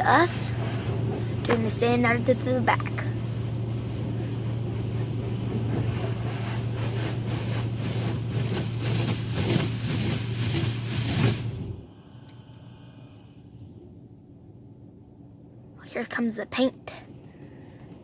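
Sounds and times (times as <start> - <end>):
low machinery hum: 0.0 - 18.0
water jets spraying on car: 5.8 - 11.6.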